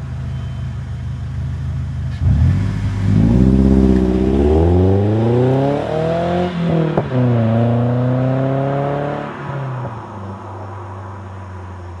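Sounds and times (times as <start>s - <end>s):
car exhaust revving: 2.0s - 9.2s.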